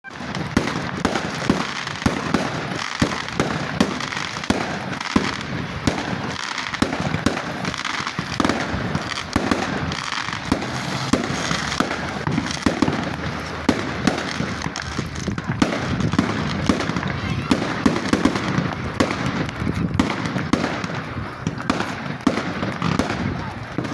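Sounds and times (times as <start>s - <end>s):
dense crackling: 0.0s - 23.9s
fireworks bangs and pops: 0.0s - 23.9s.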